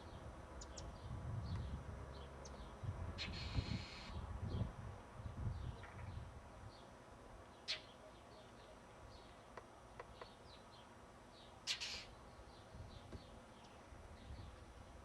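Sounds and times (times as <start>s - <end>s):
bird chirping: 0.0s - 4.6s, 7.5s - 14.6s.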